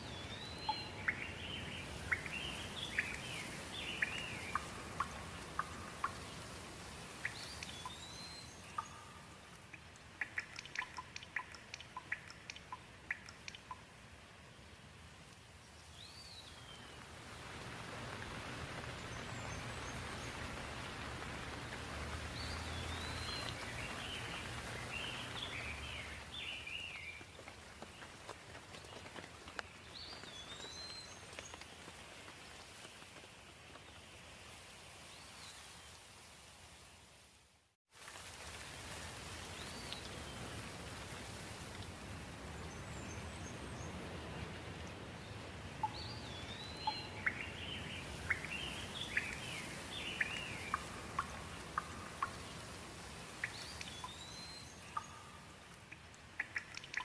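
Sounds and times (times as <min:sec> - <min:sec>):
water drips: 0:00.0 - 0:34.6, 0:38.0 - 0:57.0
soft steady hiss: 0:00.0 - 0:57.0
steady rain: 0:00.0 - 0:57.0
water drops plinking: 0:00.3 - 0:06.4, 0:07.2 - 0:13.9, 0:45.8 - 0:52.6, 0:53.4 - 0:57.0.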